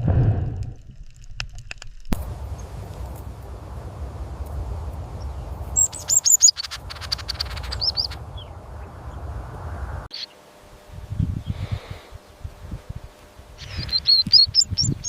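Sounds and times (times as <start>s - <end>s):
steady low rumble: 0.0s - 10.1s
small bird chirping: 5.1s - 9.3s, 10.1s - 10.4s, 13.6s - 15.0s.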